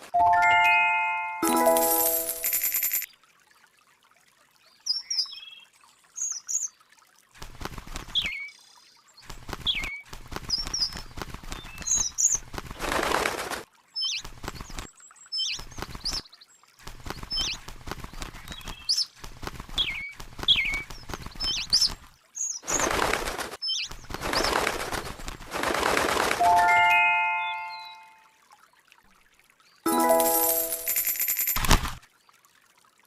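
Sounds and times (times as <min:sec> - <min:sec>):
chime ringing: 0:00.2 - 0:03.1, 0:29.9 - 0:31.6.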